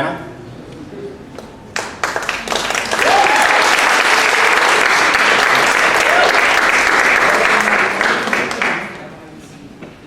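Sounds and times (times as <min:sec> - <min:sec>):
audience applauding: 0:01.4 - 0:09.1.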